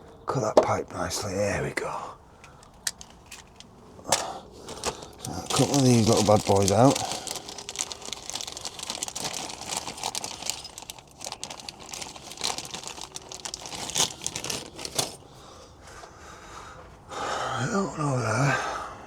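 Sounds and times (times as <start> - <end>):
plastic packaging crinkling: 2.5 - 15.3.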